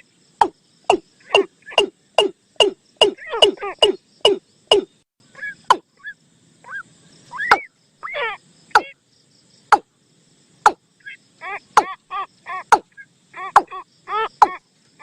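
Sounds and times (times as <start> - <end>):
bird call chirping notes: 0.0 - 9.0.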